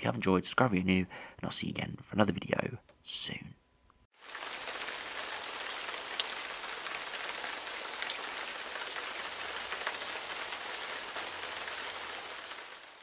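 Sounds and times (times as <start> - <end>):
steady rain falling: 4.2 - 13.0.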